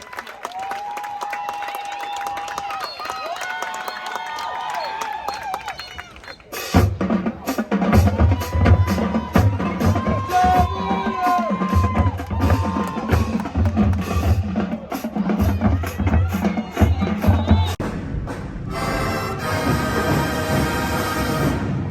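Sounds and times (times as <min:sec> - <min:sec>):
marching band playing: 0:06.4 - 0:21.9.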